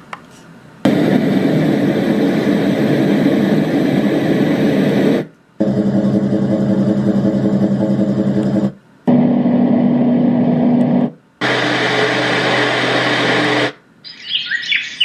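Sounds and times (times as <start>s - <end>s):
white noise machine: 0.0s - 15.0s
pulsing noise track: 0.9s - 13.8s.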